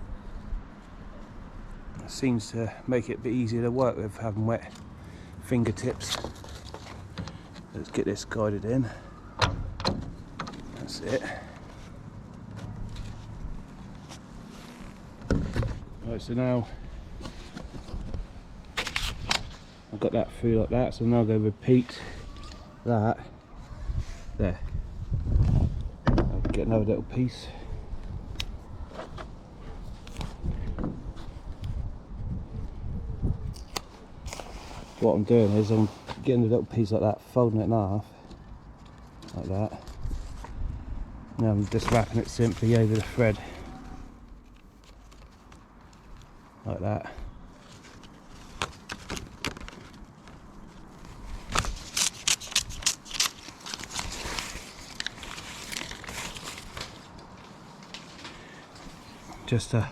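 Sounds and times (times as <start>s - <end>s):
sealing tape pulled off: 18.8s - 19.6s, 51.3s - 57.0s.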